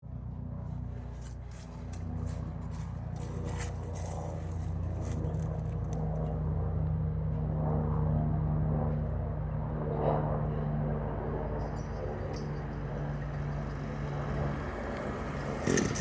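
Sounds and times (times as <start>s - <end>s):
string trimmer engine idling: 11.6s - 16.0s.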